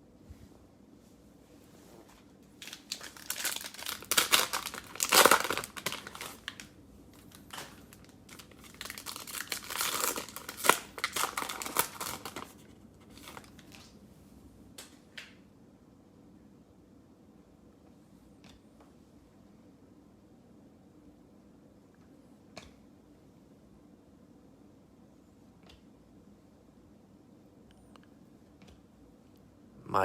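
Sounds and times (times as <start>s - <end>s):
cellophane wrapper crinkling and tearing: 2.6s - 14.0s.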